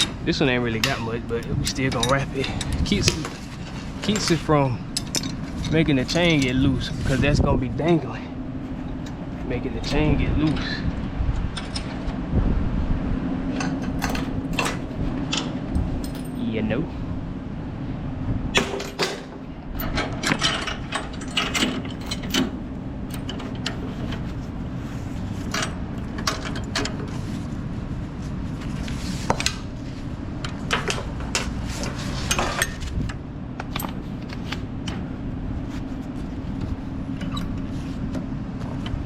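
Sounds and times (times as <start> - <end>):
steady low hum: 0.0 - 39.0
chain clinking and rattling: 13.7 - 16.6, 18.7 - 22.6.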